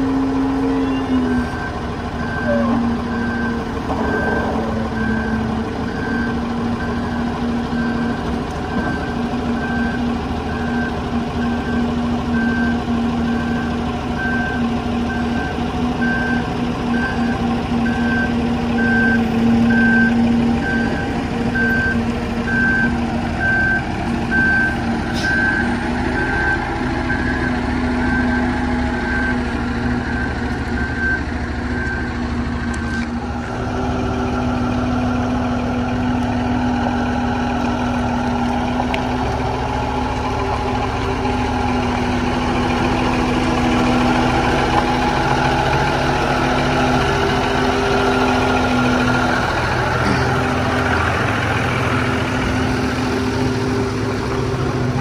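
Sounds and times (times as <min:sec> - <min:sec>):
vehicle engine humming: 0:00.0 - 0:55.0
reversing alarm beeping: 0:00.2 - 0:33.0.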